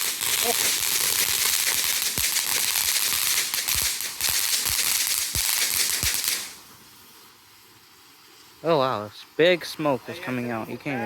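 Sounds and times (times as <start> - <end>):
firework crackling pops: 0.0 - 7.0
firework hissing: 0.0 - 8.2.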